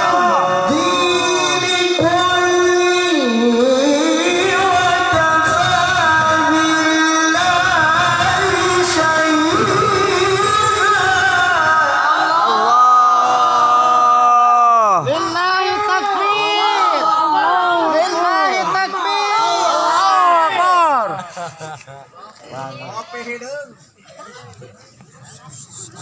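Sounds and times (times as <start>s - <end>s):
man reciting melodically: 0.0s - 13.1s.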